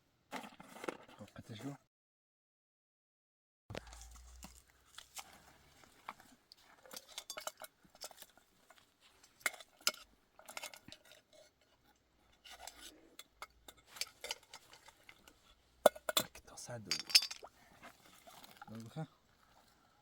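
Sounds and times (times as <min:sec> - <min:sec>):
utensils clinking against dishes: 0:06.9 - 0:08.2, 0:15.9 - 0:17.5.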